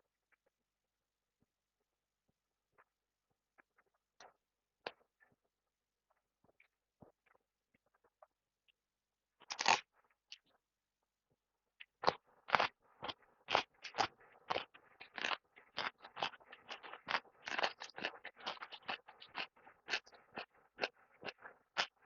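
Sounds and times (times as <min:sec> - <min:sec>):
snack crunching: 0:09.4 - 0:10.5, 0:11.8 - 0:22.0.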